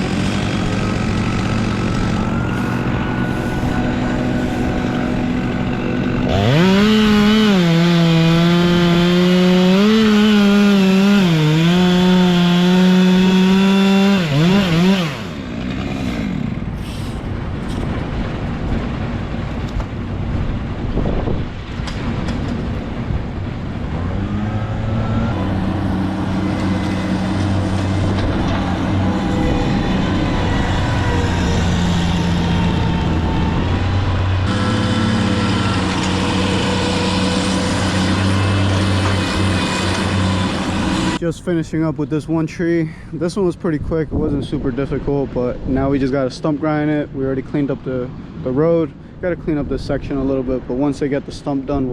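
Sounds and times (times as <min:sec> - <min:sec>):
truck engine idling: 0:00.0 - 0:07.4
chainsaw cutting at high revs: 0:00.0 - 0:17.2, 0:24.0 - 0:33.2, 0:33.8 - 0:41.2.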